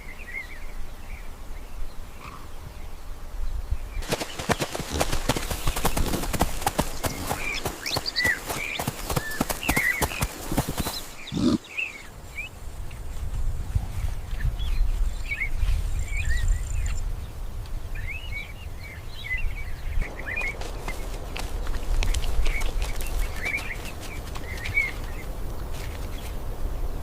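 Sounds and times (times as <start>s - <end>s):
small birds chirping: 0.0s - 26.7s
low wind-like rumble: 12.0s - 27.0s.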